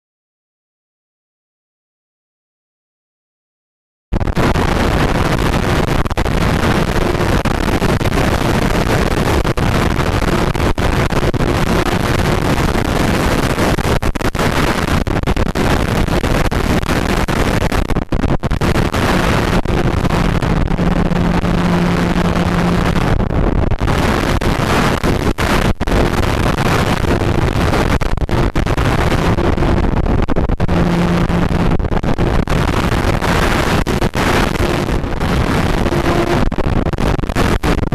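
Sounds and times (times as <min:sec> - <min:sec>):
wind on microphone: 0:04.2 - 0:37.9
low hum: 0:15.6 - 0:37.9
plane motor and propeller humming: 0:18.6 - 0:23.3, 0:30.6 - 0:31.7, 0:32.3 - 0:36.6.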